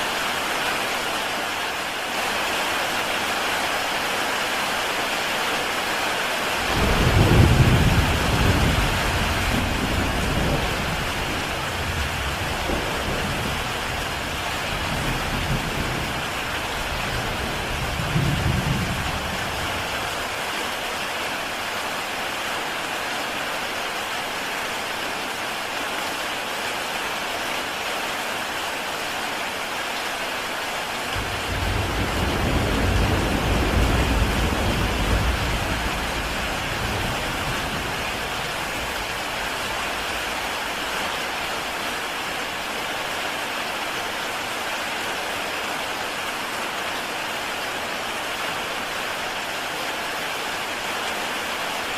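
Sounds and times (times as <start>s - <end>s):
heavy rain on a tile roof: 0.0s - 51.9s
rolling thunder rumbles: 6.6s - 20.1s, 31.2s - 40.9s.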